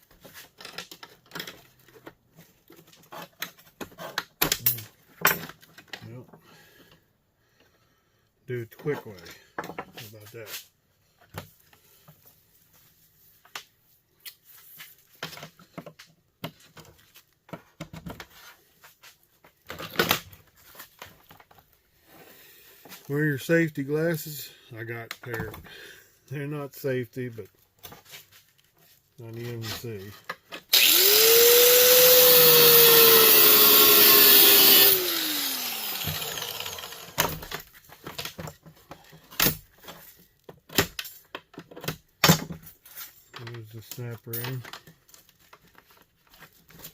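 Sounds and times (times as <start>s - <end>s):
power tool motor whining: 30.7s - 37.4s.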